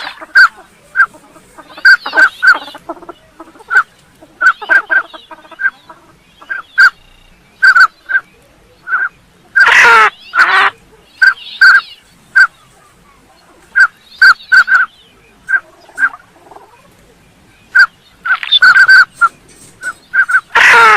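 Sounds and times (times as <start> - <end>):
harsh falling duck calls: 0.0 - 7.0, 9.0 - 12.5, 20.2 - 20.9
ducks whistling calls: 0.0 - 16.9, 17.7 - 20.9.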